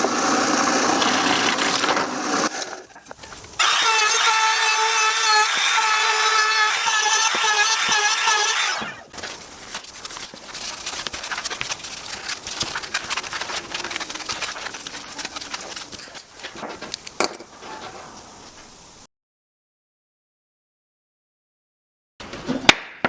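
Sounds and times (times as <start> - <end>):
wooden pieces clicking and rubbing: 6.5 - 17.5.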